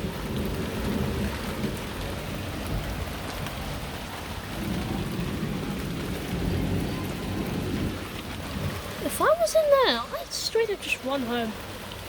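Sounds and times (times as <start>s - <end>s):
thunder rumble: 0.0s - 11.7s
heavy rain falling: 0.0s - 12.0s.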